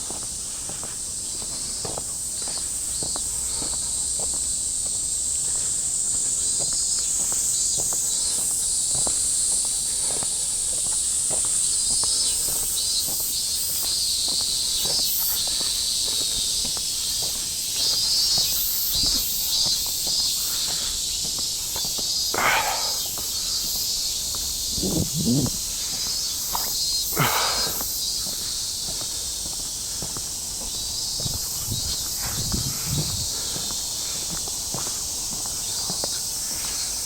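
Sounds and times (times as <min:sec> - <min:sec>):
cicadas buzzing: 0:00.0 - 0:37.0
footsteps walking: 0:14.2 - 0:36.3.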